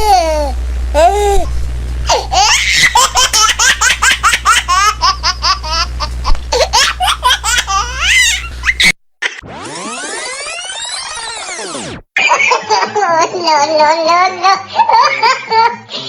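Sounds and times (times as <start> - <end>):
low steady hum: 0.0 - 8.9
rising swoop: 9.4 - 12.0.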